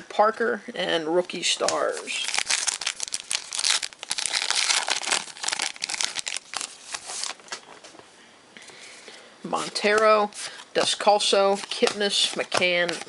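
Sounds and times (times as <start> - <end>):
wrapper crinkling and tearing: 1.6 - 7.6.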